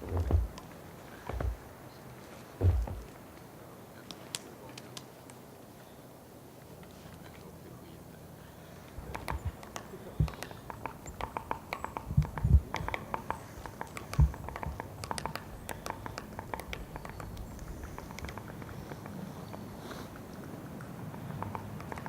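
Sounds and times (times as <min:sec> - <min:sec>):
woodpecker pecking at wood: 0:00.0 - 0:01.8, 0:02.6 - 0:03.2, 0:08.9 - 0:22.0.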